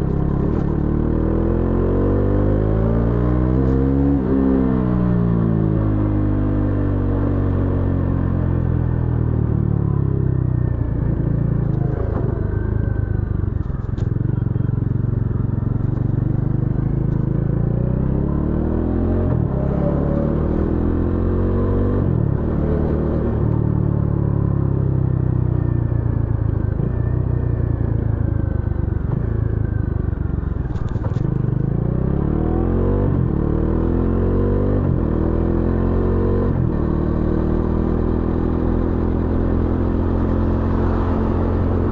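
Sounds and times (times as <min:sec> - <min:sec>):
motorcycle engine revving: 0:13.6 - 0:24.8, 0:29.0 - 0:41.9.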